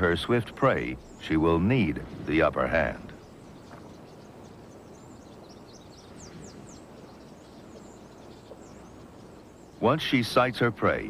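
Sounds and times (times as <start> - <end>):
outdoor background hiss: 0.0 - 11.0
small birds chirping: 0.0 - 11.0.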